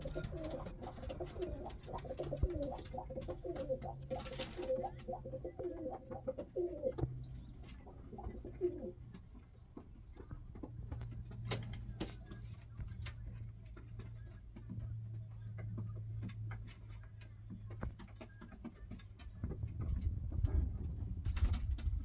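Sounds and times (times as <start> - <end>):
pigeons cooing: 0.0 - 9.4.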